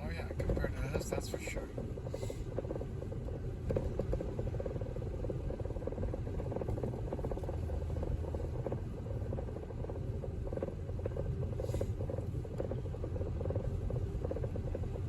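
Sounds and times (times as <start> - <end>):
car road rumble: 0.0 - 15.0.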